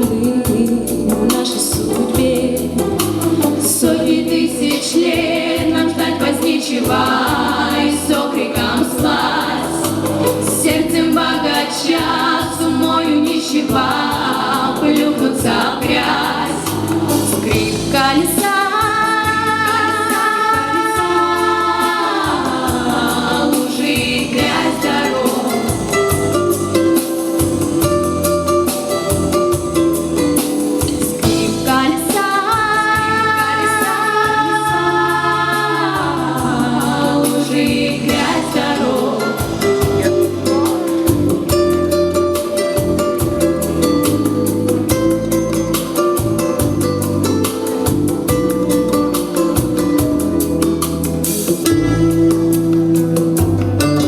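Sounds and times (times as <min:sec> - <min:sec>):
girls singing in harmony: 0:00.0 - 0:26.7, 0:31.2 - 0:40.4
instrumental backing: 0:00.0 - 0:54.0.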